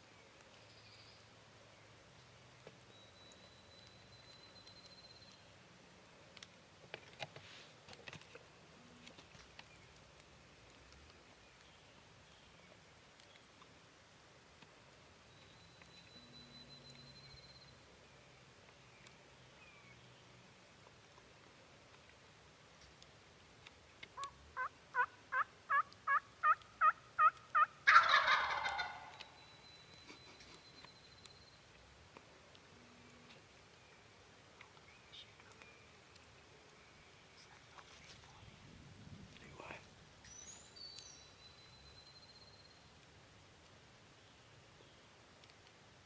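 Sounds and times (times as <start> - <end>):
faint clicks and crackles: 2.1 - 19.6, 20.2 - 27.6, 28.6 - 38.6, 42.8 - 46.0
turkey yelping: 24.2 - 29.2
turkey gobbling: 24.2 - 29.3.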